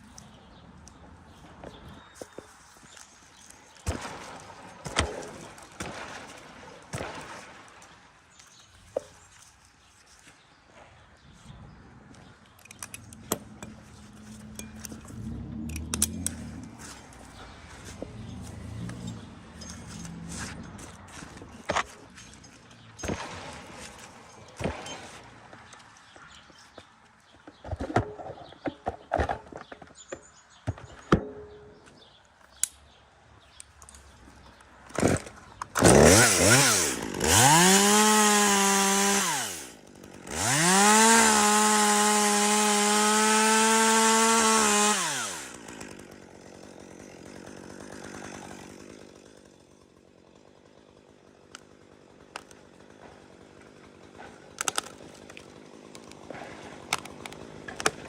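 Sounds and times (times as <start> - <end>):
chainsaw revving: 3.9 - 7.4, 13.0 - 26.0, 34.8 - 58.0.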